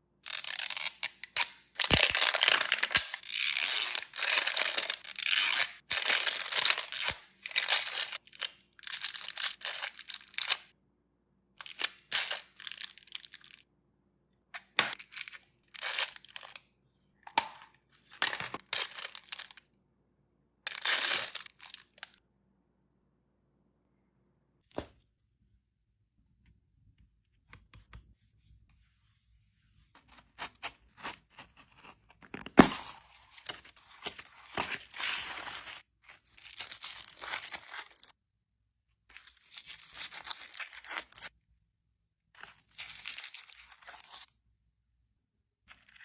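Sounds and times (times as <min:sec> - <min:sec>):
packaging crinkling and tearing: 0:00.4 - 0:10.6, 0:18.0 - 0:19.6, 0:20.7 - 0:22.2, 0:30.4 - 0:38.1, 0:39.2 - 0:41.3.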